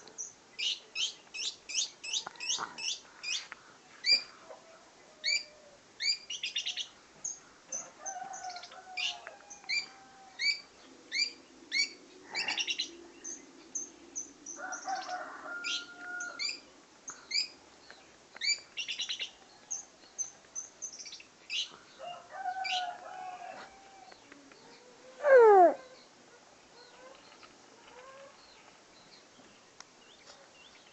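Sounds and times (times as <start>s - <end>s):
bird chirping and trilling: 9.7s - 16.6s.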